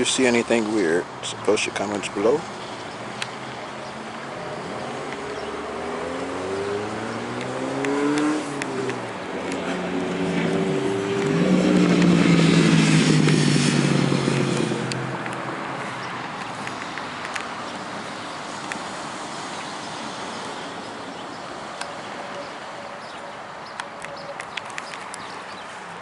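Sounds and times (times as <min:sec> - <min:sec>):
vehicle accelerating past: 0:04.4 - 0:16.2.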